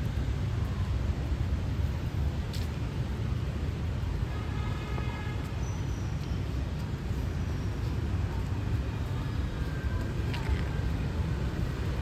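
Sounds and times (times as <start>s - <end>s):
road traffic rumble: 5.4s - 12.0s.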